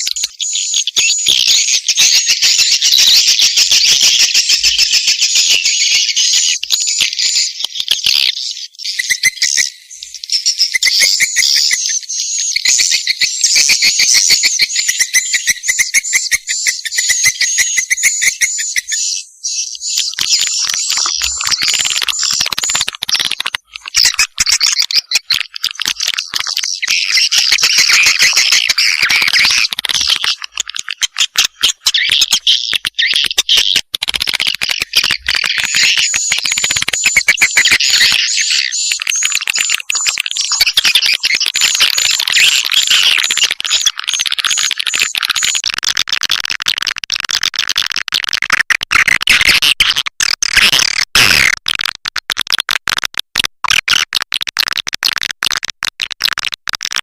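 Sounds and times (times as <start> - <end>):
fast twittering chirps and clicks: 0.0 - 57.0
repeated high chirps: 34.8 - 45.5.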